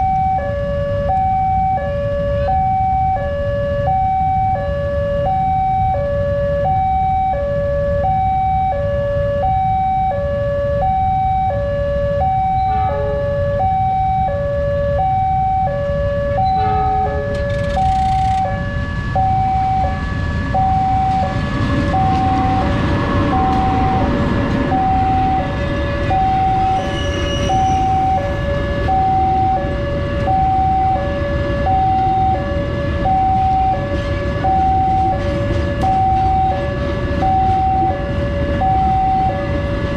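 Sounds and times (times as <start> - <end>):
level crossing two-tone alarm: 0.0 - 39.6
road traffic rumble: 0.0 - 39.9
vehicle passing: 20.2 - 26.6.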